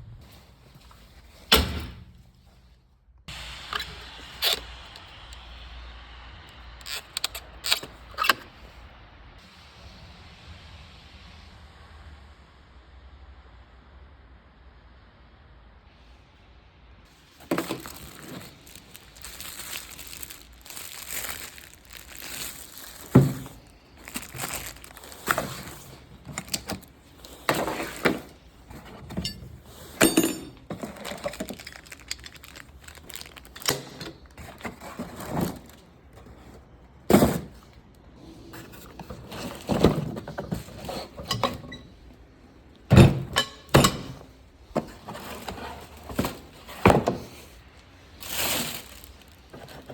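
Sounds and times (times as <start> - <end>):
metal tools clanking: 27.5 - 32.6, 42.9 - 44.2.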